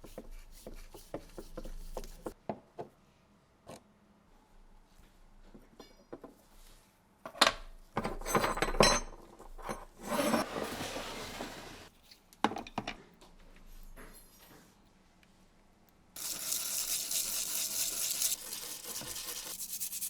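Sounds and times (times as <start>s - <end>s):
metal scraping: 9.8s - 11.9s.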